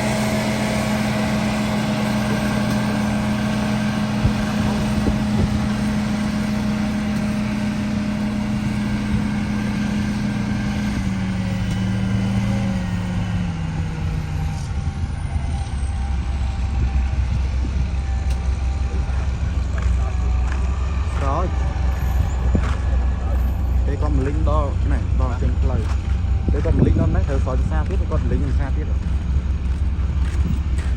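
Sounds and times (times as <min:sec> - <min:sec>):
road roller diesel engine: 0:00.0 - 0:30.9.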